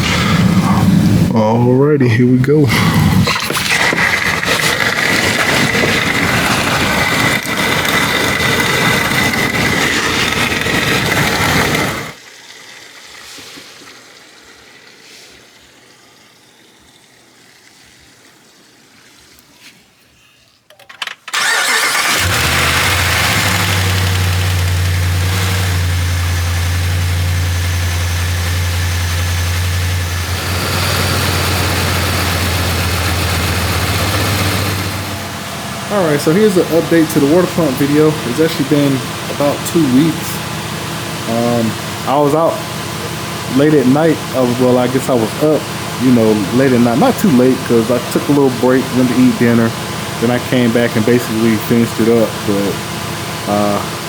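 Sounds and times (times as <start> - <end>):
vacuum coolant filler hissing: 0.0 - 1.6, 2.5 - 19.4, 21.3 - 54.0
car engine cranking and idling: 3.3 - 12.2, 21.0 - 54.0.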